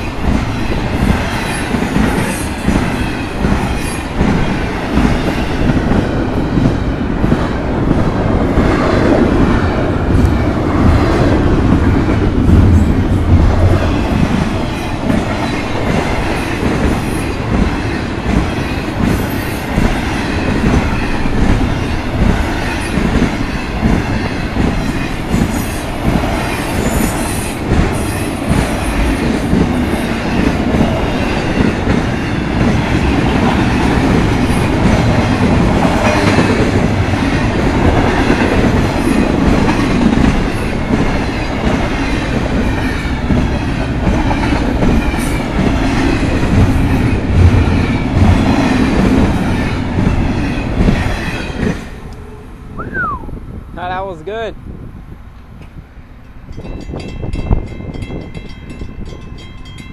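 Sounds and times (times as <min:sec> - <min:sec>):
train wheels clattering on rails: 0:00.0 - 0:52.0.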